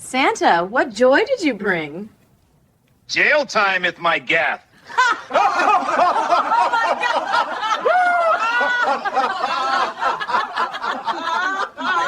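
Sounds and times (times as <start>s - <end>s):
people laughing: 4.8s - 12.0s.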